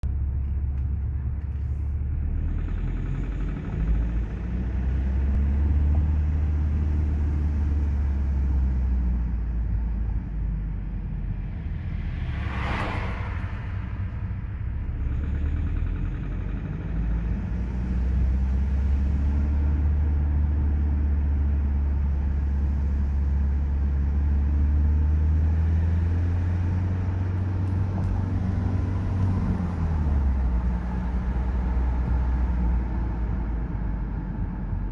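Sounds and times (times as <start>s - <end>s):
car engine droning at low revs: 0.0s - 34.9s
brief rushing whoosh: 11.4s - 15.1s.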